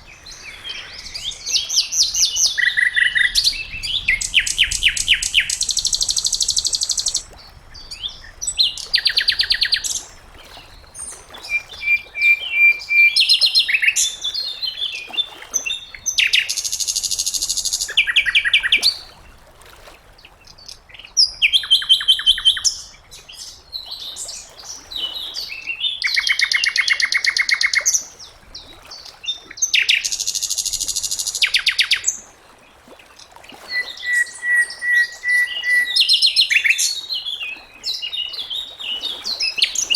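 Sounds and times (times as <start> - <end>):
bird whistled notes: 11.5 - 14.1, 33.7 - 36.4
bird singing high trills: 11.5 - 14.9.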